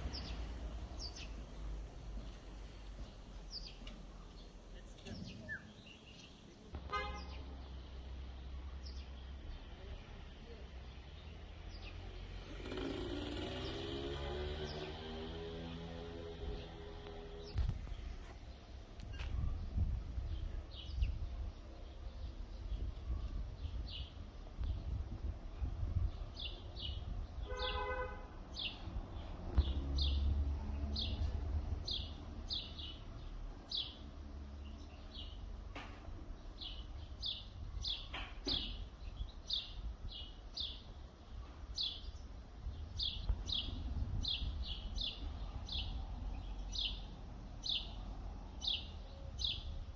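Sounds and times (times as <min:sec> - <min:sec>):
low outdoor rumble: 0:00.0 - 0:05.8
bird chirps: 0:00.0 - 0:07.4
car horn toot: 0:06.9 - 0:07.4, 0:27.5 - 0:28.3.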